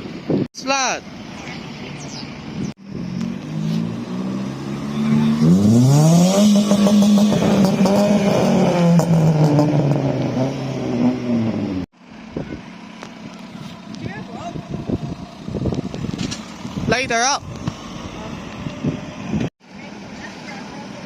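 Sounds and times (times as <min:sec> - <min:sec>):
car engine revving: 0:02.4 - 0:19.4.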